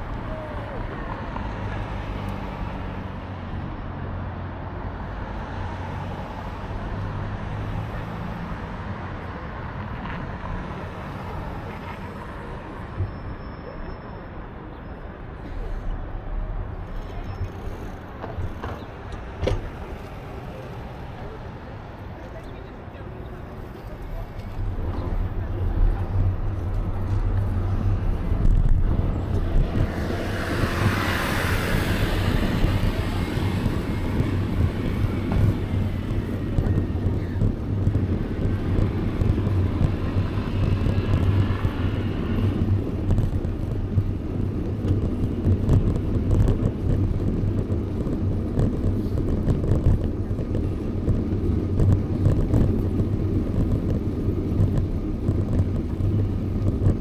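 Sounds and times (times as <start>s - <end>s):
traffic noise: 0.0s - 57.0s
wind rumble on microphone: 15.2s - 57.0s.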